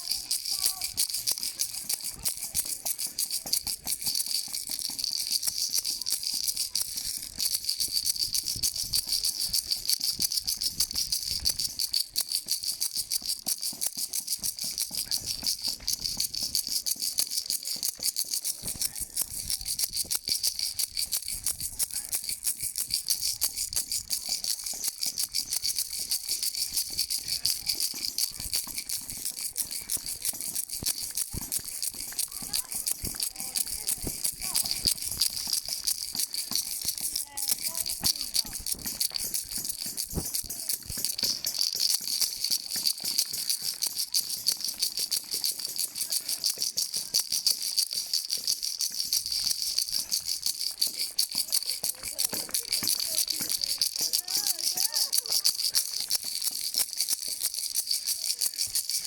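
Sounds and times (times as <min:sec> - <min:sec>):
shaker rattling rapidly: 0:00.0 - 0:59.0.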